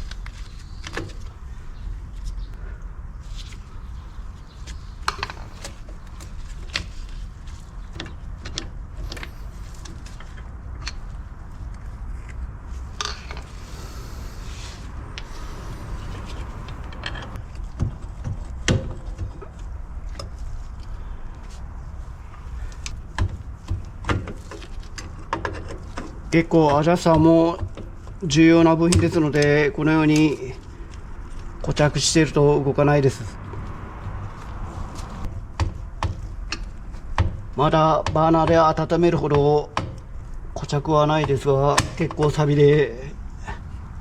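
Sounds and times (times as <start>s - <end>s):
steady low hum: 8.8s - 17.6s
hissing: 13.2s - 17.4s.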